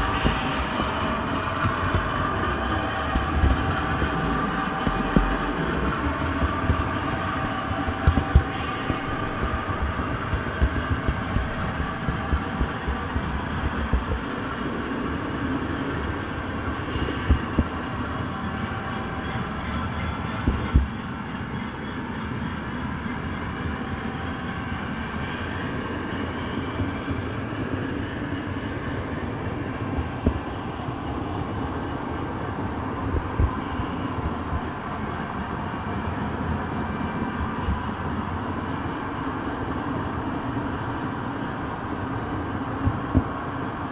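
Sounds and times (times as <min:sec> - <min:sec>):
low knocks: 0:00.0 - 0:14.3
train rumbling on rails: 0:00.0 - 0:43.9.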